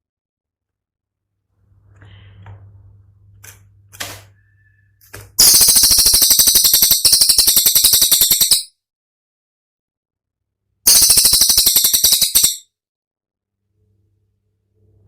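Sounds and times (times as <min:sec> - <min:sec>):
songbird rattling trill: 0:05.4 - 0:08.7, 0:10.9 - 0:12.6.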